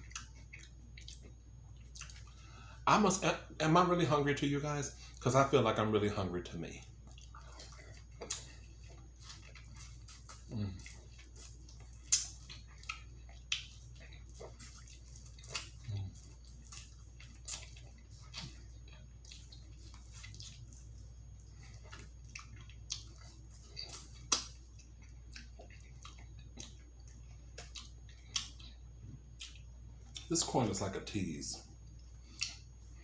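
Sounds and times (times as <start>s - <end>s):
wet mouth chewing smacks: 0.0s - 2.4s, 7.0s - 30.3s, 31.9s - 33.0s.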